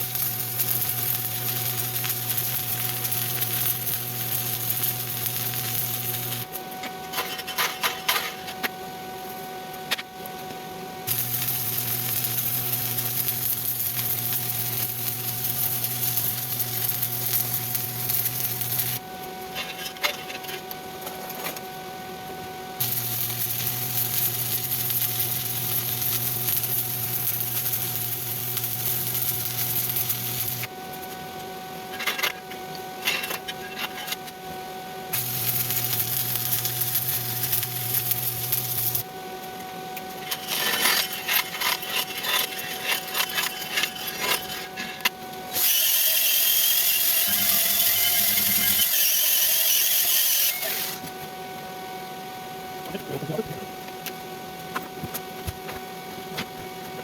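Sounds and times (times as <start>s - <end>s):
welding arc crackling: 0.0s - 6.6s, 11.1s - 19.1s, 22.8s - 31.1s, 35.1s - 39.1s, 40.0s - 51.1s.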